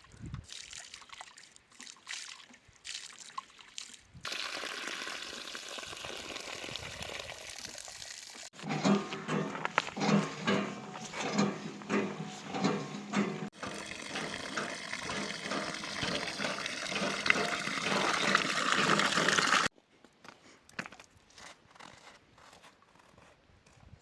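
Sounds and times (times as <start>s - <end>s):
water pouring into container: 0.4s - 8.5s, 13.5s - 19.7s.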